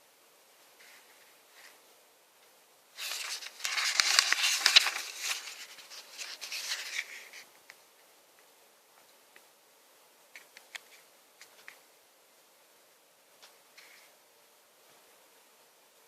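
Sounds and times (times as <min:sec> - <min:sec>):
packaging rustling: 0:03.0 - 0:07.4.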